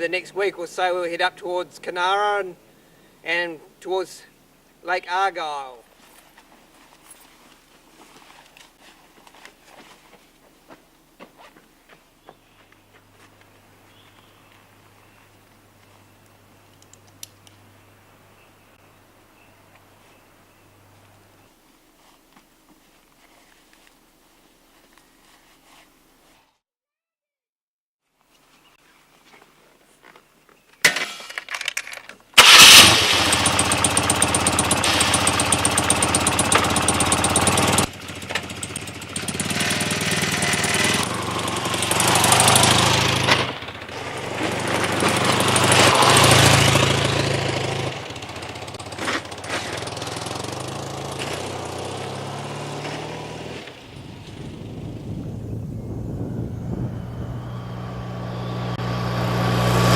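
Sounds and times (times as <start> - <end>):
motorcycle engine cranking: 31.4 - 53.8
motorcycle engine running: 32.4 - 59.9.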